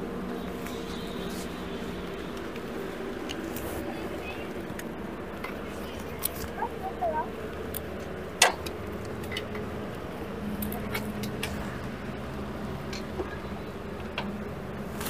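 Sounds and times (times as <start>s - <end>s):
motorcycle engine idling: 0.0s - 6.0s.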